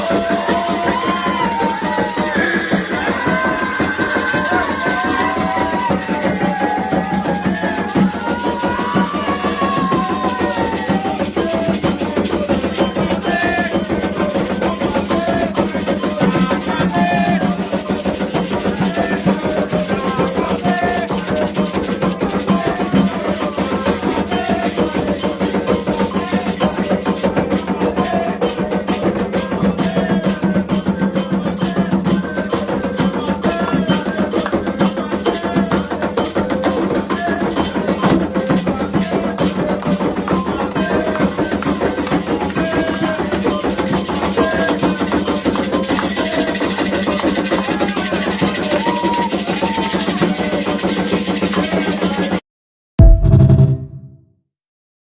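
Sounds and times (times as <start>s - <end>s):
hand drums playing fast rhythm: 0.0s - 52.4s
voices singing: 0.0s - 52.4s.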